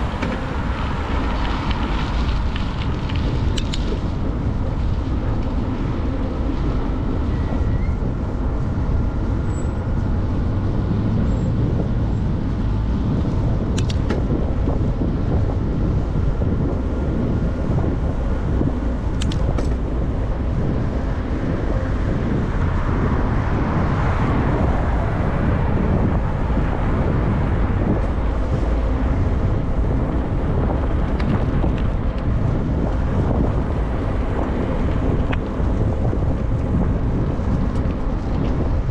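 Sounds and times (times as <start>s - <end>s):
road traffic: 0.0s - 38.9s
wind buffeting microphone: 0.0s - 38.9s
sharp clicks: 3.0s - 3.9s, 13.7s - 14.2s, 19.1s - 19.8s.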